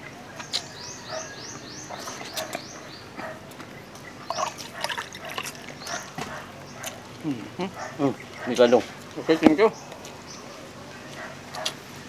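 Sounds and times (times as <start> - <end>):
people chewing and tearing ribs: 0.0 - 12.0
small bird chirping: 0.3 - 4.8, 5.7 - 10.7.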